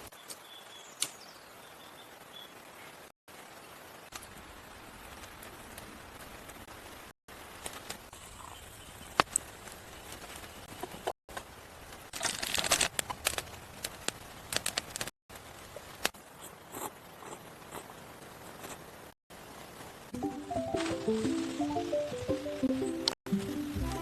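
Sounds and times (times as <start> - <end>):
sharp snaps and crackles: 1.0 - 1.3, 7.4 - 8.2, 9.0 - 16.2
crunching: 12.1 - 15.1.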